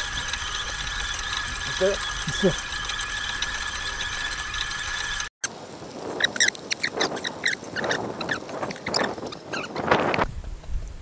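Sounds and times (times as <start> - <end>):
fishing reel clicking: 0.0 - 5.3.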